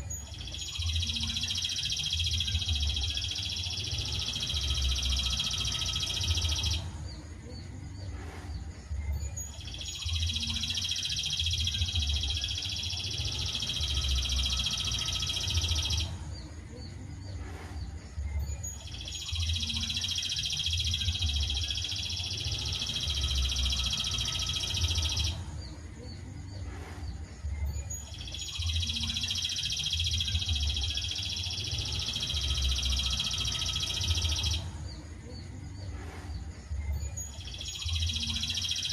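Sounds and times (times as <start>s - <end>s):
high bird trilling: 37.2s - 38.9s.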